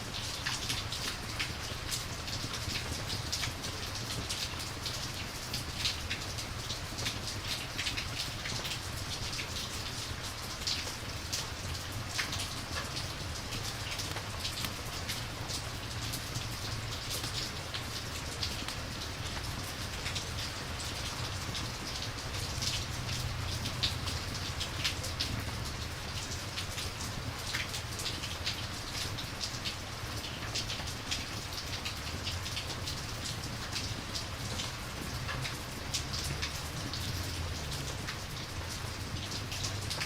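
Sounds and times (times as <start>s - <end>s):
rain falling: 0.0s - 40.0s
raindrop ticks: 0.1s - 40.0s.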